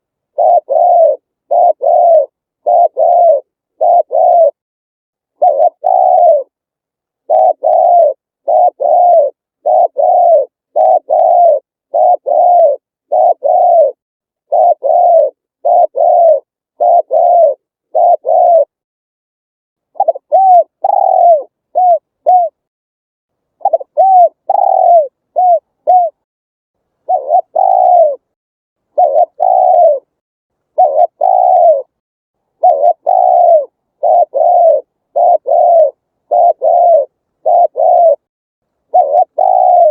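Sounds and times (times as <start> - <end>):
dove cooing: 0.0 - 4.6, 5.4 - 6.6, 7.2 - 18.8, 20.0 - 22.6, 23.6 - 26.2, 27.0 - 30.2, 30.8 - 32.0, 32.6 - 38.3, 38.9 - 39.9.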